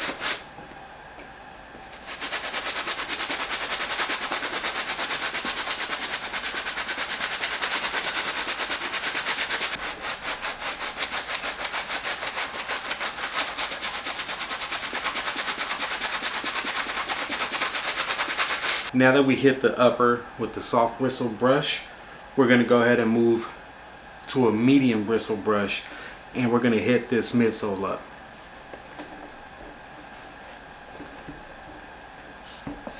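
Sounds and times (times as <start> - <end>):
brush scrubbing a sneaker: 0.0 - 0.5, 1.9 - 18.9.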